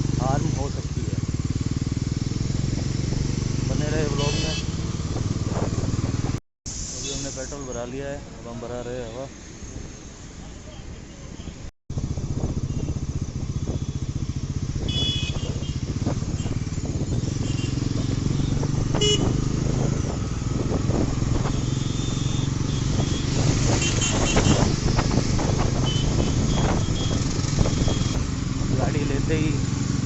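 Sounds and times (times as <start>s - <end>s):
motorcycle engine running: 0.0s - 6.4s, 11.9s - 30.0s
vehicle horn beeps: 4.1s - 4.8s, 14.8s - 16.6s, 18.4s - 19.4s, 21.5s - 23.2s, 23.8s - 24.7s, 25.8s - 28.2s.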